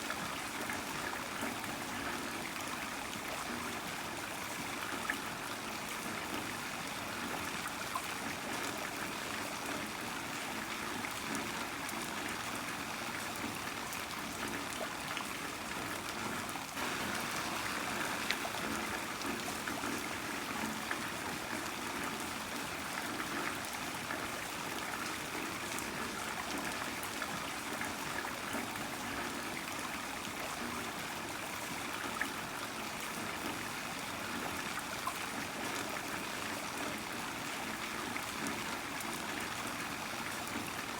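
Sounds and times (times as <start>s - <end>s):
heavy rain falling: 16.8s - 22.0s.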